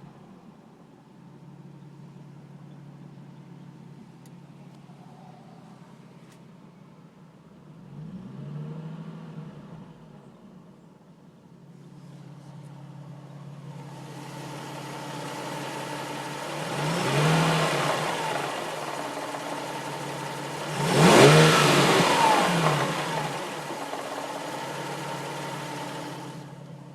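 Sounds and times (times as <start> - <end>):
car engine revving: 13.8 - 26.7.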